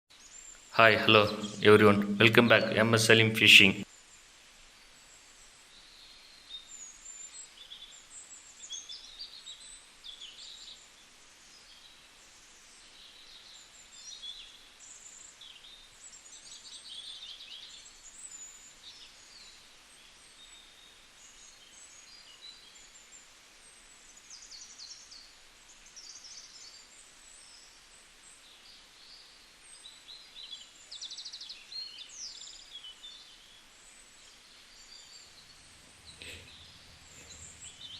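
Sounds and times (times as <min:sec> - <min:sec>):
faint outdoor hiss: 0:00.1 - 0:37.9
birds chirping: 0:00.8 - 0:03.8, 0:34.6 - 0:37.9.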